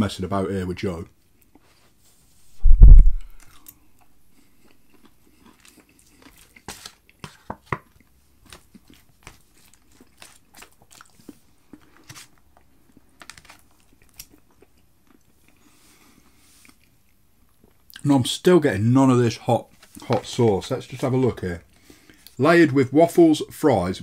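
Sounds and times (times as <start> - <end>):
loud low thump: 2.6 - 3.4
person chewing crunchy food: 4.4 - 7.2, 7.9 - 17.7.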